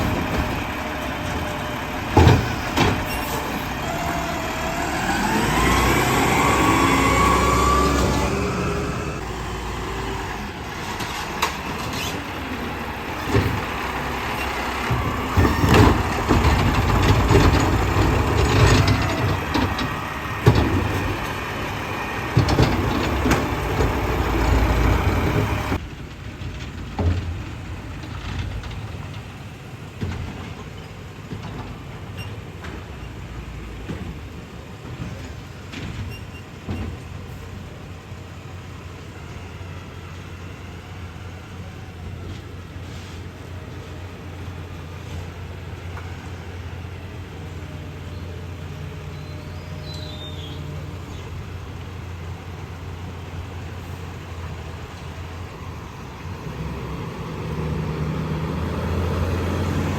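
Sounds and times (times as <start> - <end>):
compactor clanks and thuds: 0.0 - 3.6, 13.1 - 21.4, 22.3 - 33.0
garbage truck engine under load: 0.0 - 59.9.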